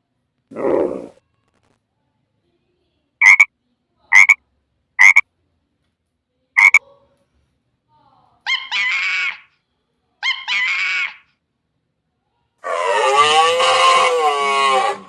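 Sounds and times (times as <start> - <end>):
frog croaking: 3.2 - 3.5, 4.1 - 4.4, 5.0 - 5.2, 6.6 - 6.8.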